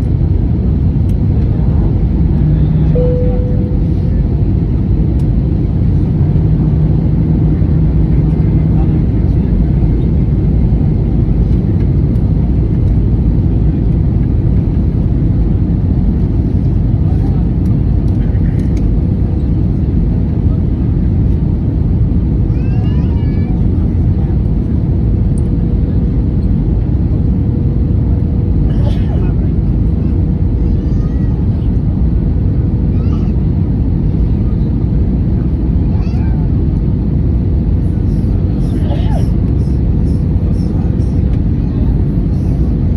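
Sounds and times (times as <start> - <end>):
airliner engines rumbling: 0.0 - 42.9
faint steady hum: 2.9 - 4.4.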